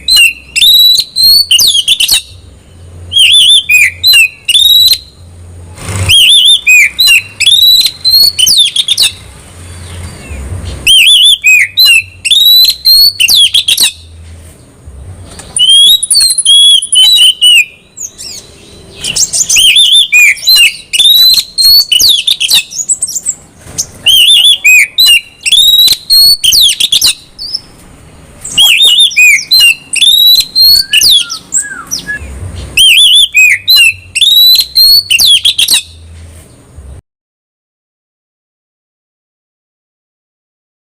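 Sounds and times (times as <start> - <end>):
bird singing whistled phrases: 0.0 - 2.4, 3.1 - 5.1, 6.1 - 9.2, 10.2 - 14.2, 15.5 - 23.4, 24.0 - 27.7, 28.4 - 36.0.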